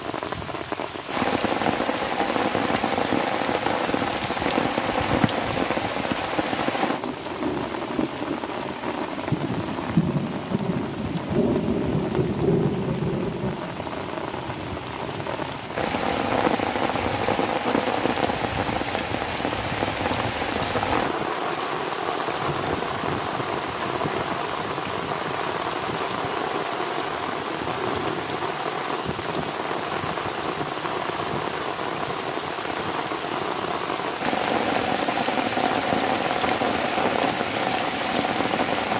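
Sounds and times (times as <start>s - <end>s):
heavy rain: 0.0s - 38.9s
low rumble of thunder: 9.3s - 13.9s.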